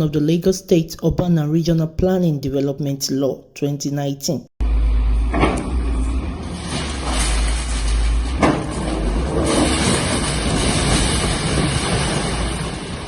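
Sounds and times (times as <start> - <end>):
heavy machinery running: 4.6 - 13.0.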